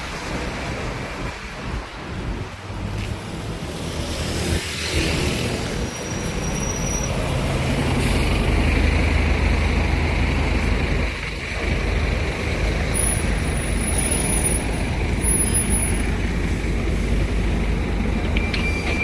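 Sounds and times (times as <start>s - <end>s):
road traffic noise: 0.0s - 19.0s
bus diesel engine humming: 5.4s - 19.0s.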